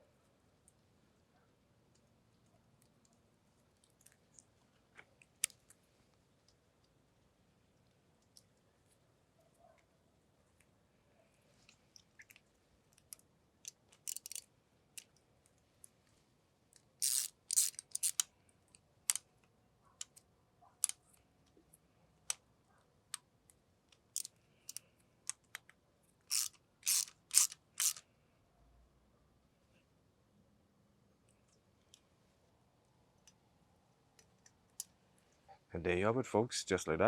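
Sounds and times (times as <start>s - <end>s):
metallic clicks of hand tool: 13.9s - 14.4s, 17.0s - 18.3s, 24.2s - 25.6s, 26.3s - 28.0s.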